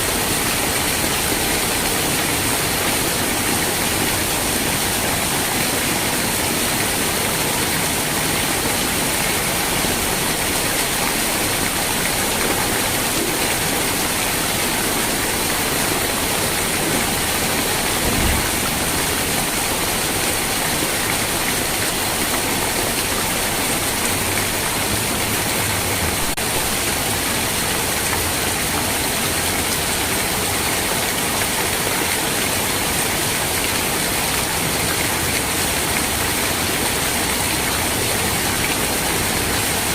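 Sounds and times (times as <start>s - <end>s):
steady rain hiss: 0.0s - 39.9s
low thump: 17.9s - 18.9s.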